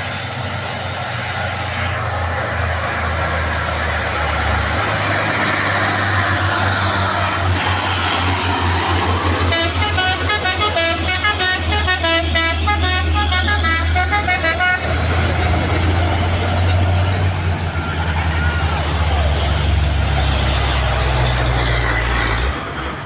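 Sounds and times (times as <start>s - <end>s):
truck engine running: 0.0s - 23.0s
truck musical horn melody: 9.4s - 15.6s.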